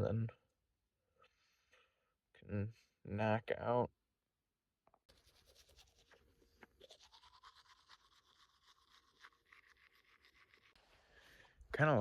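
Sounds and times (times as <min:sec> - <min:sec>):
toothbrush scrubbing teeth: 0:05.1 - 0:11.3.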